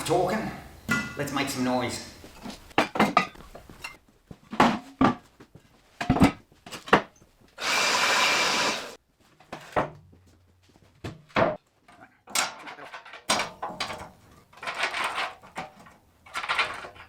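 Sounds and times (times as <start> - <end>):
power tool running: 7.6 - 9.0.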